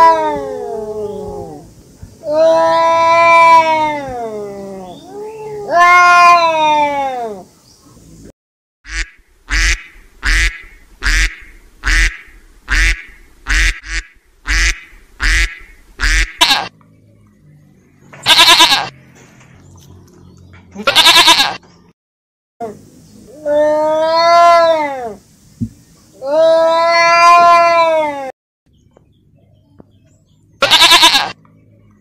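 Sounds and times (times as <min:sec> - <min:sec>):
cat meowing: 0:05.1 - 0:07.4, 0:26.2 - 0:28.3
duck quacking: 0:08.9 - 0:16.7.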